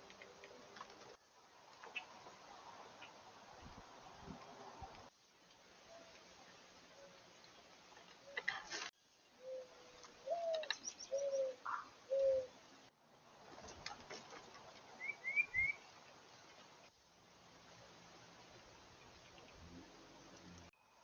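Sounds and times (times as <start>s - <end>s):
small bird chirping: 9.4s - 12.5s
dove cooing: 9.4s - 12.6s
faint clicks: 10.0s - 11.0s.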